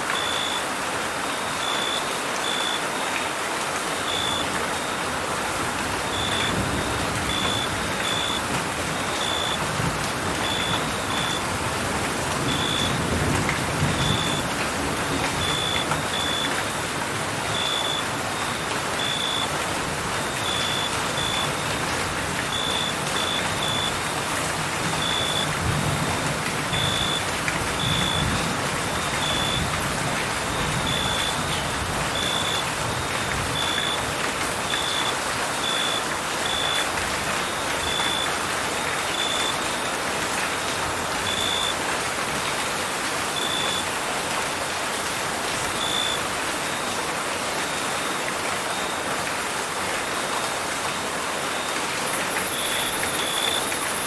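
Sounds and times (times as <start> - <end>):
steady rain falling: 0.0 - 54.0
crickets chirping: 4.0 - 5.1, 6.1 - 9.6, 10.4 - 11.5, 12.5 - 12.9, 14.0 - 14.4, 15.4 - 16.7, 17.5 - 19.6, 20.3 - 21.8, 22.5 - 24.2, 26.8 - 27.2, 32.2 - 34.0, 45.8 - 46.2, 52.4 - 54.0.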